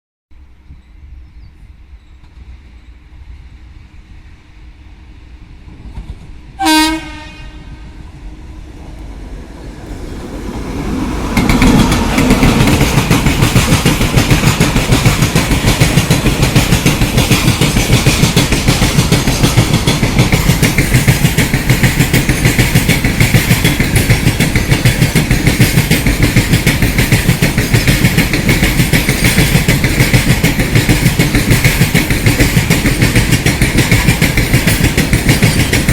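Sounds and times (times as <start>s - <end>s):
train wheels clickety-clack: 5.6s - 7.6s, 10.5s - 35.9s
locomotive horn blast: 6.6s - 8.0s.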